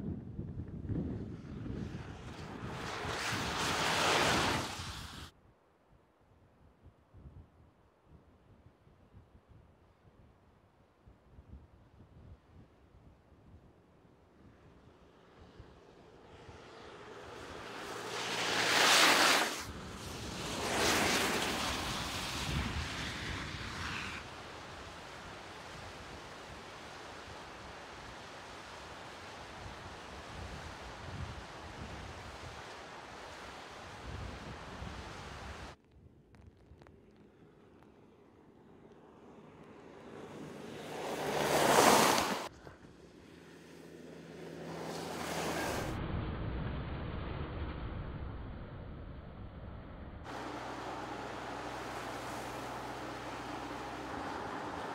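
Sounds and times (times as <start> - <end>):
car tyres hissing through slush: 2.0 - 5.3, 16.7 - 35.8, 40.1 - 42.5, 44.6 - 46.0, 50.3 - 54.9
deep vehicle rumble: 44.3 - 54.9.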